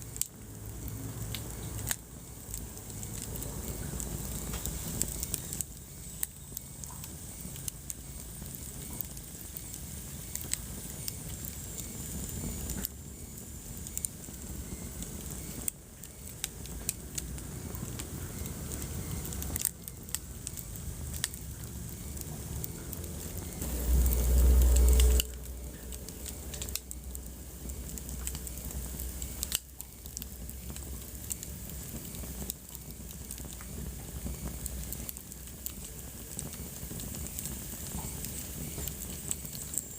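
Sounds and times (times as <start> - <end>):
wood fire crackling: 0.0 - 39.9
deep rumble: 16.6 - 31.1.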